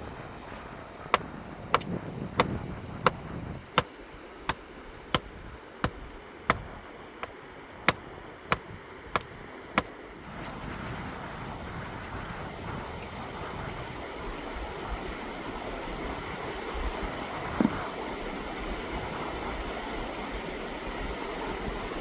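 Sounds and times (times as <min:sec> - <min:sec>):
sharp hard strikes: 0:04.5 - 0:07.4.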